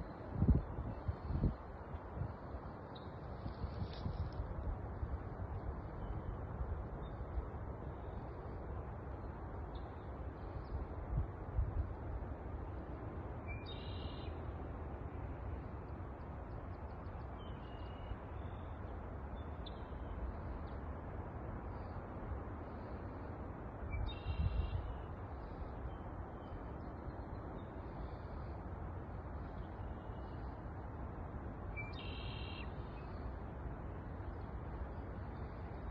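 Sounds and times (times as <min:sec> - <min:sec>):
bird calling: 0:31.8 - 0:33.2.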